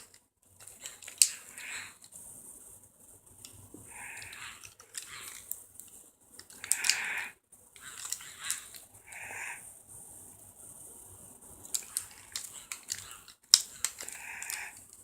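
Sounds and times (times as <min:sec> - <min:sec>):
small clicks: 0:00.0 - 0:02.2, 0:03.4 - 0:09.3, 0:11.7 - 0:15.0.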